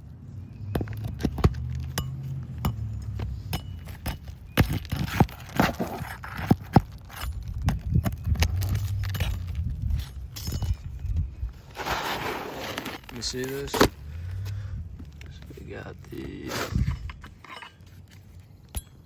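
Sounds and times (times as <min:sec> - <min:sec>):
metal tools clinking on shingles: 0:00.6 - 0:11.2, 0:12.7 - 0:19.0
low rumble: 0:08.0 - 0:11.6.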